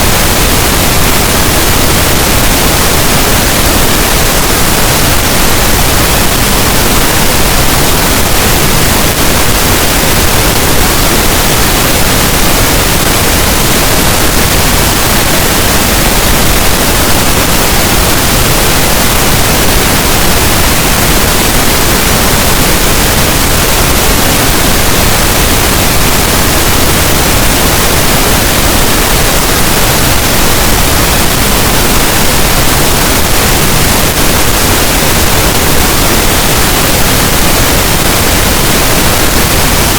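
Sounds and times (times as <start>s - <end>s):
loud pink noise hiss: 0.0s - 39.9s.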